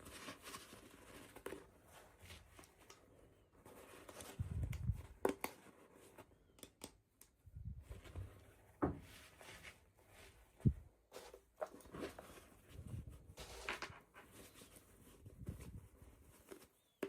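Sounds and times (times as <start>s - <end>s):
plastic toys knocking and rustling: 13.3s - 14.3s.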